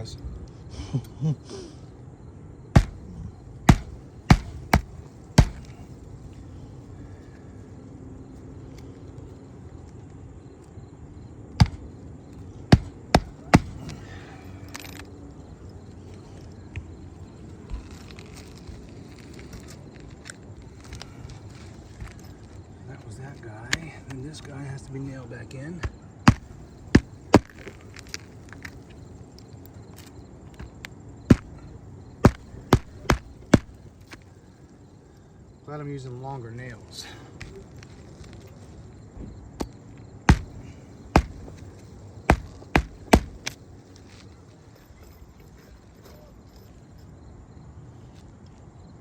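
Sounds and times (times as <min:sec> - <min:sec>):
hammer blows: 0:02.7 - 0:06.0, 0:12.7 - 0:15.1, 0:31.3 - 0:33.9, 0:40.3 - 0:43.6.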